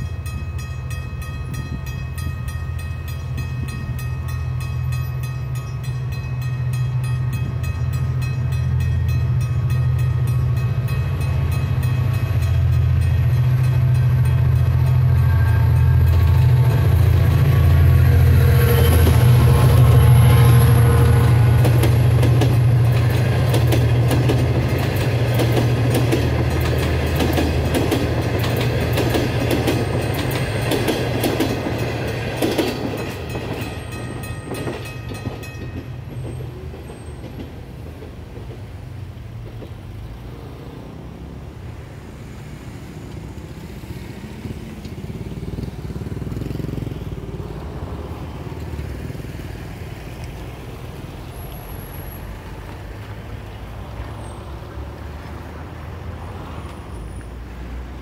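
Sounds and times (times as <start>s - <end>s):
train wheels clicking over rail joints: 0.0s - 40.8s.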